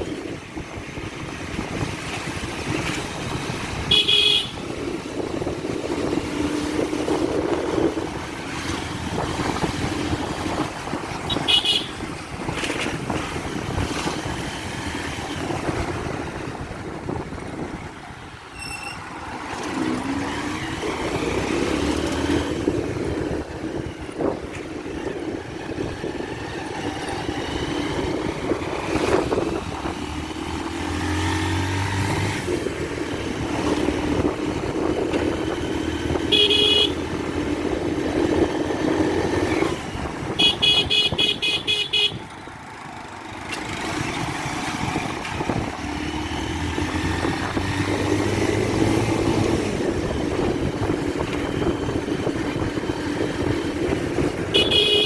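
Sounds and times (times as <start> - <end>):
motorcycle engine running: 0.0 - 55.0
motorcycle horn beeps: 3.8 - 4.8, 11.2 - 12.1, 18.5 - 19.1, 36.2 - 37.1, 40.3 - 42.3, 54.5 - 55.0.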